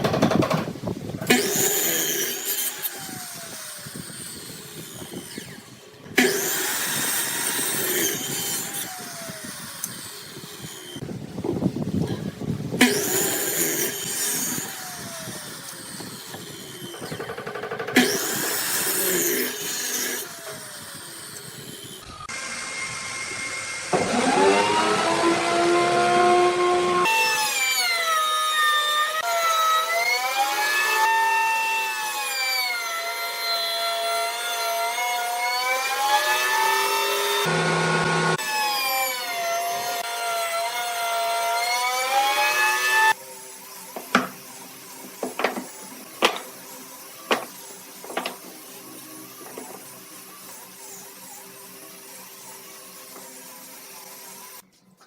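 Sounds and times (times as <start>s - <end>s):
power tools cutting wood: 0.0s - 54.7s
motor whine: 0.8s - 27.1s.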